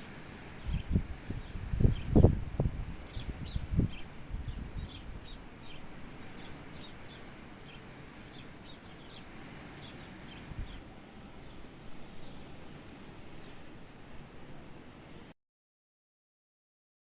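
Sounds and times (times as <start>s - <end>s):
small bird chirping: 0.6s - 12.5s.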